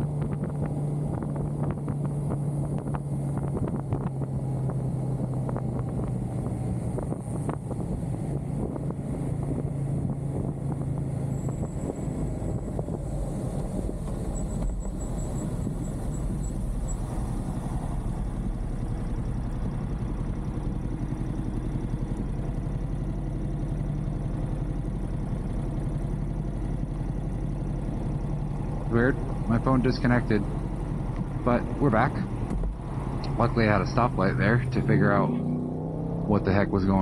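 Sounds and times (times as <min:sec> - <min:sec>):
motorcycle engine idling: 0:14.2 - 0:31.6.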